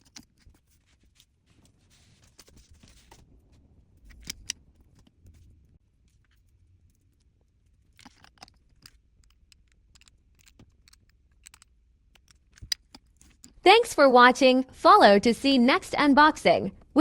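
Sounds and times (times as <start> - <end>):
plastic toy clicks: 4.1 - 4.6, 8.0 - 13.6.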